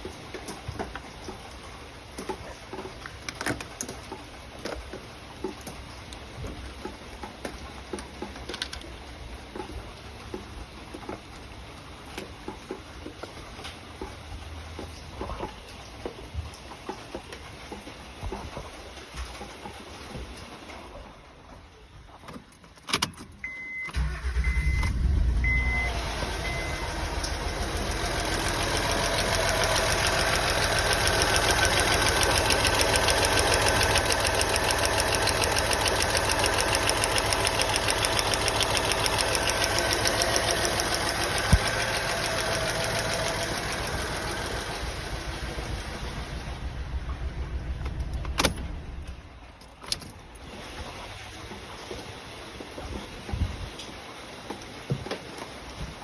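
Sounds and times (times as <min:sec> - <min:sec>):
car engine cranking and starting: 0:22.3 - 0:52.0
short electronic beeps: 0:23.4 - 0:26.8
car engine running with misfire: 0:23.8 - 0:53.6.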